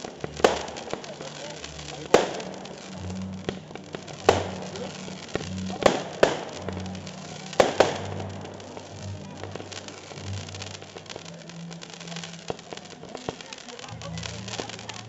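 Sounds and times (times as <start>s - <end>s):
fireworks bangs: 0.0s - 15.0s
fireworks crackling: 0.0s - 15.0s
music with low bass: 0.0s - 15.0s.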